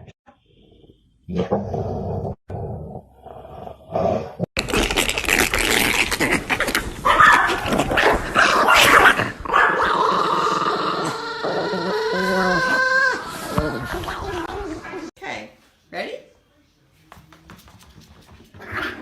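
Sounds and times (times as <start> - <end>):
dog growling: 6.1 - 15.1.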